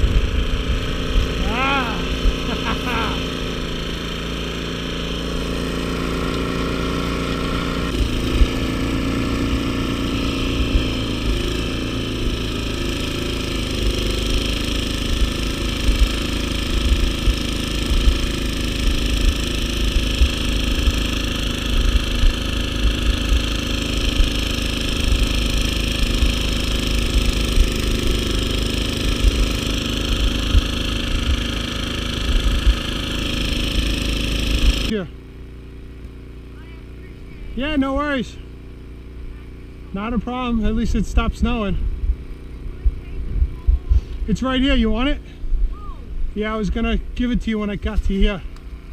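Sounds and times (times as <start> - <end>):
snowblower engine running: 0.0 - 48.9
wind buffeting microphone: 40.7 - 44.2.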